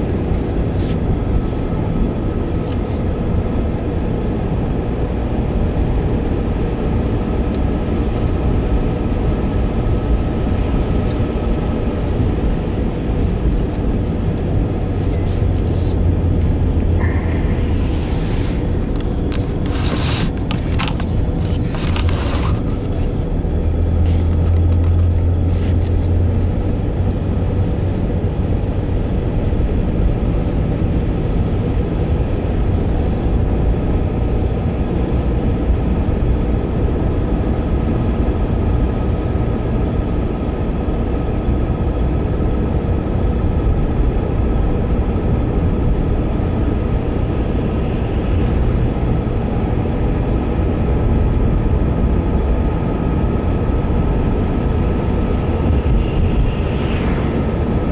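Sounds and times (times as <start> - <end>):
car engine and road noise: 0.0 - 57.9.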